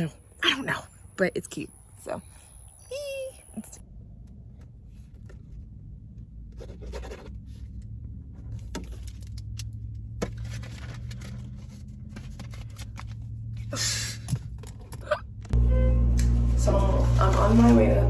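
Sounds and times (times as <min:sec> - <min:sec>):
rustling: 0:10.3 - 0:13.8
low rumble: 0:15.3 - 0:18.0.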